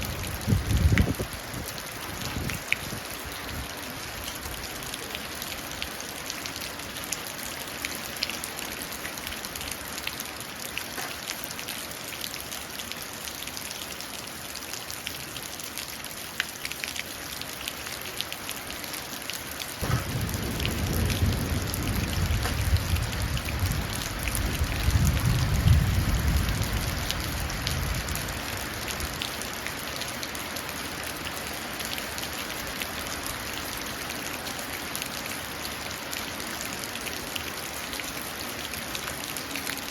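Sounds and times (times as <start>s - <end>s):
rain falling into puddle: 0.0s - 39.9s
thunder rumble: 19.8s - 28.2s.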